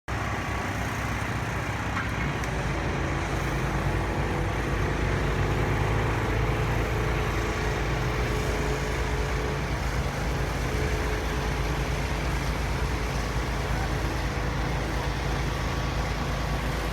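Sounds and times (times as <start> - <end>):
vehicle engines and tyres rumbling: 0.1 - 16.9.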